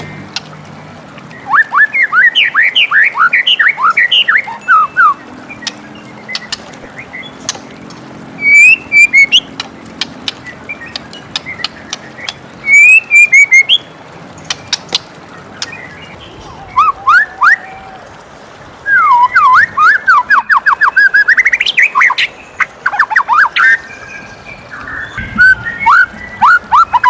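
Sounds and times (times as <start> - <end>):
bird singing whistled notes: 1.4 - 7.4, 8.4 - 9.5, 10.7 - 13.9, 18.8 - 27.0
bird clicking notes: 5.6 - 6.8, 7.4 - 13.8, 14.4 - 15.8.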